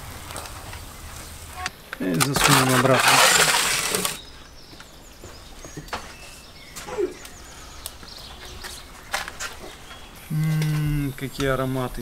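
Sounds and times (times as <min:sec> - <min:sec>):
birds chirping: 0:00.7 - 0:12.0.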